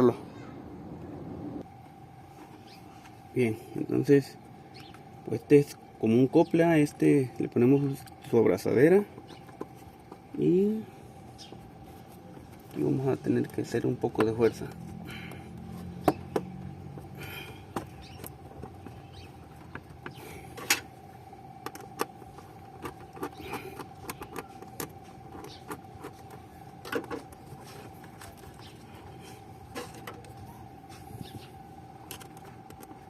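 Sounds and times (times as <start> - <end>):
faint steady hum: 0.0 - 33.0
clicks and knocks of parts: 21.6 - 28.8
rubbery squeaks: 22.9 - 26.5.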